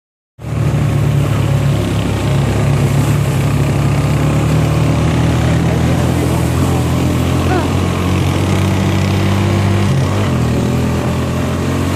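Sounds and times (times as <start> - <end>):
atv engine running: 0.4 - 11.9.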